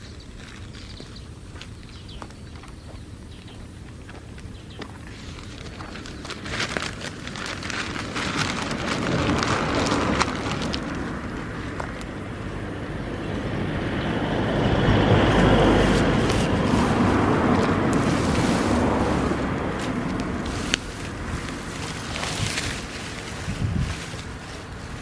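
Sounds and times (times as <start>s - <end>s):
dry grass fire crackling: 0.2s - 25.0s
rushing flames: 6.3s - 25.0s.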